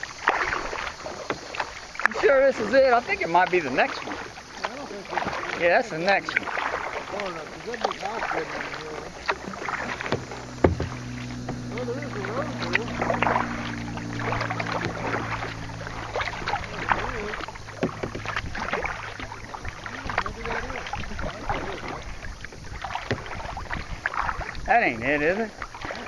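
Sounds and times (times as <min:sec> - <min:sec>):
paddle splashing in water: 0:00.0 - 0:26.0
low steady hum: 0:06.7 - 0:24.3
sharp knock: 0:10.0 - 0:11.6.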